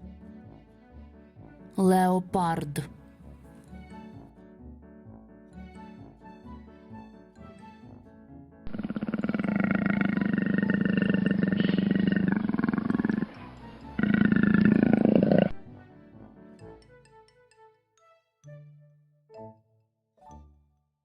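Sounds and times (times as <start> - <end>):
light children's music: 0.0 - 8.6, 10.1 - 21.0
leopard growling: 8.7 - 15.7.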